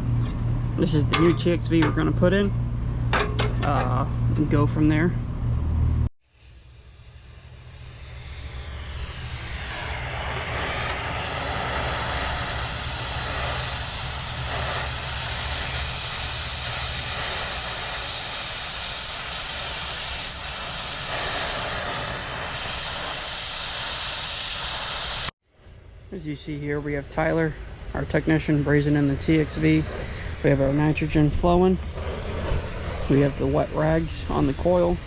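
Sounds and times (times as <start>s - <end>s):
torch flame hissing: 6.3s - 25.4s, 26.2s - 35.0s.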